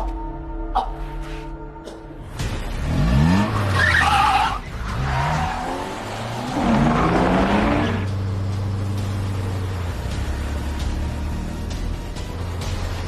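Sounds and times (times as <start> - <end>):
car engines revving hard: 2.4 - 13.0
tyres squealing: 3.5 - 8.1.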